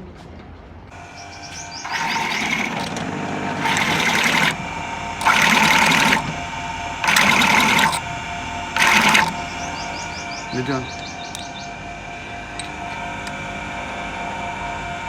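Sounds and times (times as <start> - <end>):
steady machine hum: 0.9 - 15.0
machine hissing bursts: 1.5 - 4.6, 5.2 - 6.3, 7.0 - 8.0, 8.8 - 11.5.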